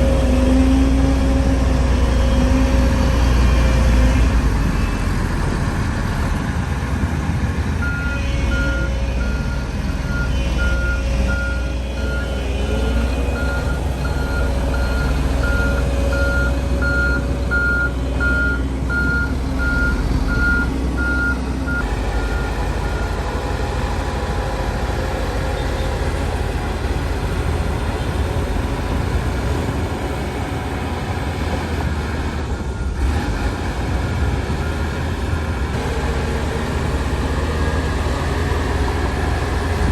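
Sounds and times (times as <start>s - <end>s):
heavy diesel machinery running: 0.0s - 39.9s
reversing alarm beeping: 7.8s - 24.4s.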